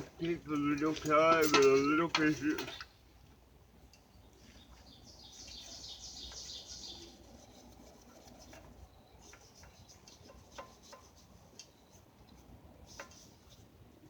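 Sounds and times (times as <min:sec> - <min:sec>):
faint clicks and scrapes: 0:00.0 - 0:14.0
bird chirping trill: 0:03.9 - 0:07.8, 0:08.6 - 0:10.5.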